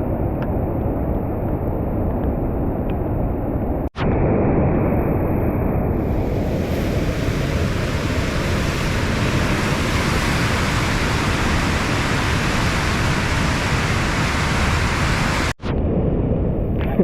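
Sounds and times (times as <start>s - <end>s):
river water rushing: 6.2s - 15.5s.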